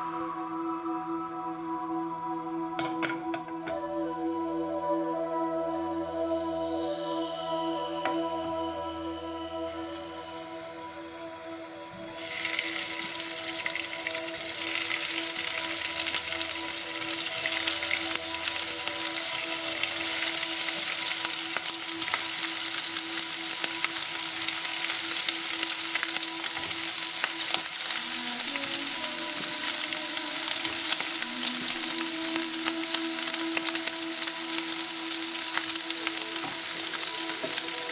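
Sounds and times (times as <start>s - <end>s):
soft background music: 0.0s - 37.9s
oil sizzling and crackling: 12.0s - 37.9s.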